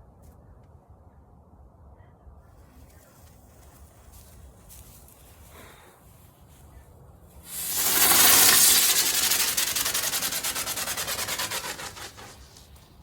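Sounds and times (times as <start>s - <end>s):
firework hissing and sputtering: 7.4s - 12.9s.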